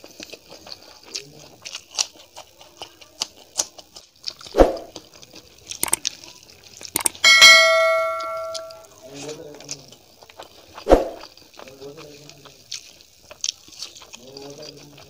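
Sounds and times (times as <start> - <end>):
wet chewing clicks and smacks: 5.3 - 6.0
bell-like ding sound effect: 7.0 - 8.9.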